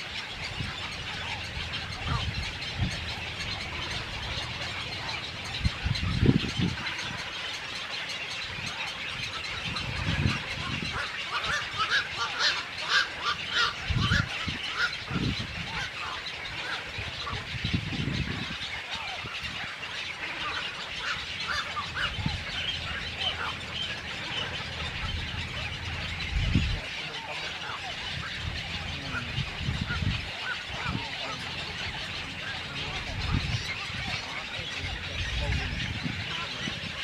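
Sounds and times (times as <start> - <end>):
many birds calling: 0.0 - 37.0.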